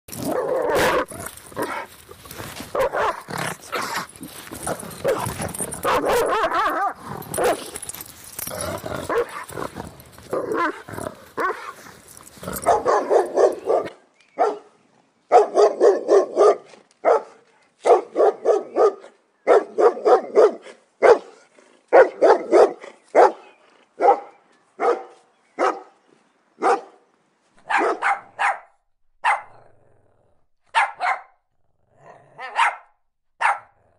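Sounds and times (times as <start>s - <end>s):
dogs growling: 0.1s - 13.9s
dogs barking: 0.1s - 14.7s, 15.3s - 26.0s, 26.6s - 27.0s, 27.6s - 29.6s, 30.7s - 31.3s, 32.4s - 33.8s.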